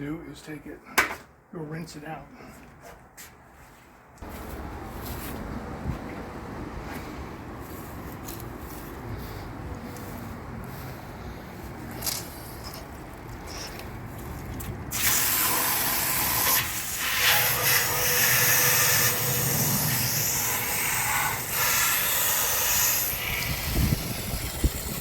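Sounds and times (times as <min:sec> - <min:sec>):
hose water spraying into tank: 0:11.9 - 0:25.0.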